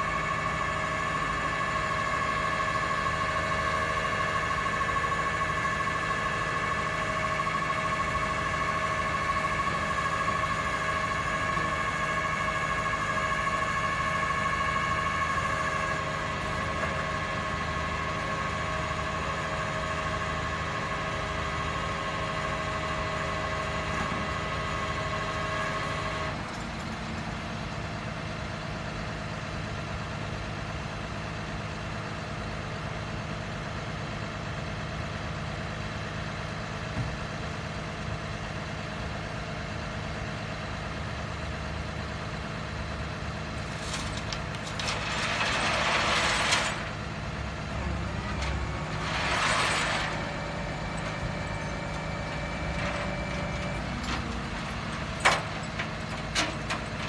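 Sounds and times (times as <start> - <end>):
steady high whine: 0.0 - 26.3, 43.5 - 57.0
truck engine idling: 0.0 - 57.0.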